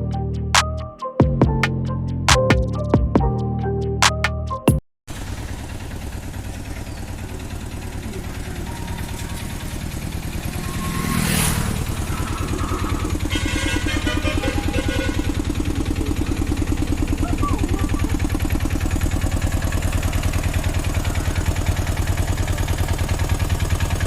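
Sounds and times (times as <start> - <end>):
intro music: 0.0 - 4.8, 7.7 - 22.5
auto rickshaw engine running: 5.1 - 24.0.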